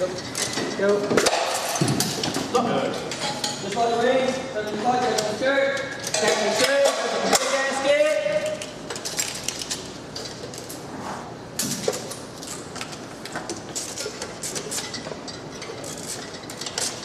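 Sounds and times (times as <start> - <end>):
metal tools clinking: 3.1 - 7.8, 13.8 - 17.0.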